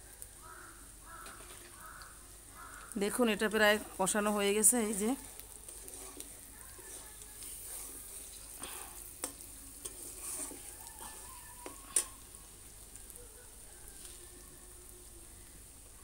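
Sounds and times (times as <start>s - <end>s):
spices sizzling in oil: 0.0s - 16.0s.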